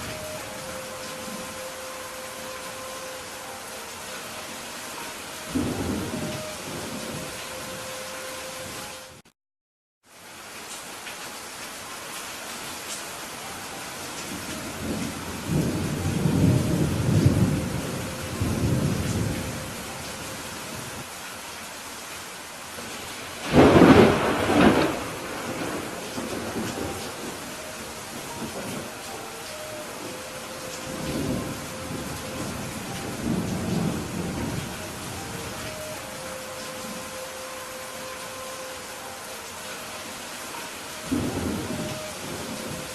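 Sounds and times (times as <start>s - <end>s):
steady rain hiss: 0.0s - 9.3s, 10.0s - 42.9s
thunder rumbling: 5.5s - 7.8s, 14.3s - 21.0s, 22.9s - 37.2s, 41.0s - 42.9s
rolling thunder: 23.4s - 27.5s, 30.0s - 35.6s.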